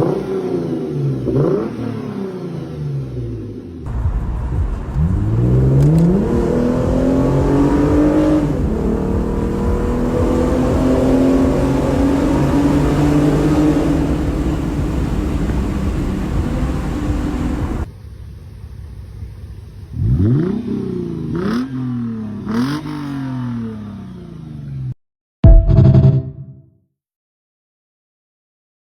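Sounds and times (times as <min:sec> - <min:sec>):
car engine accelerating hard: 0:00.0 - 0:17.9, 0:19.0 - 0:24.9
engine throttle blips: 0:01.1 - 0:23.0.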